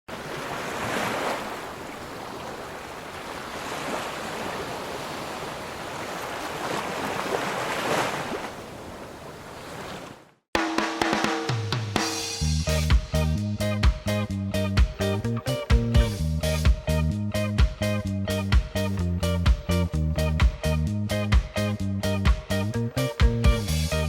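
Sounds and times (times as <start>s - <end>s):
water waves washing: 0.1s - 10.3s.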